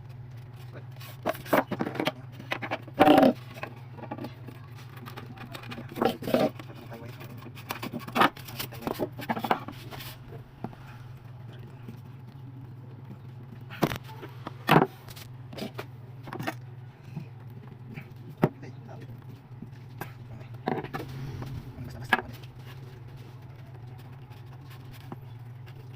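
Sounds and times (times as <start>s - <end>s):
steady low hum: 0.0s - 25.9s
objects knocking and scraping: 1.0s - 12.1s, 19.6s - 25.9s.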